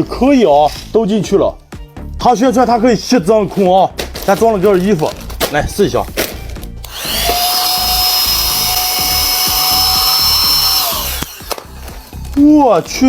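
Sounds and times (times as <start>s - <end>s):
vacuum cleaner motor whining: 6.8s - 12.4s.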